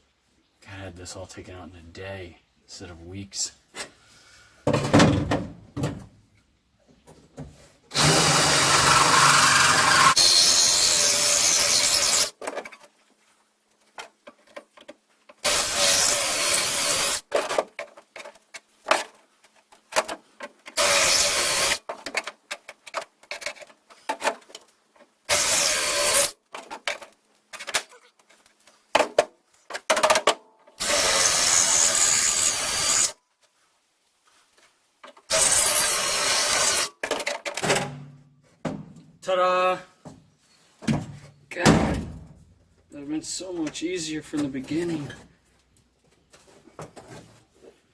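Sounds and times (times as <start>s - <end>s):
electric drill drilling metal: 7.9s - 12.3s, 15.5s - 17.2s, 20.8s - 21.8s, 25.3s - 26.3s, 30.8s - 33.1s, 35.3s - 36.9s.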